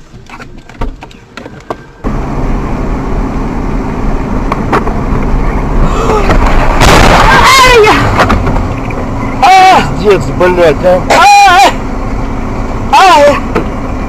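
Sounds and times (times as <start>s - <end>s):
car driving rumble: 0.0s - 14.0s.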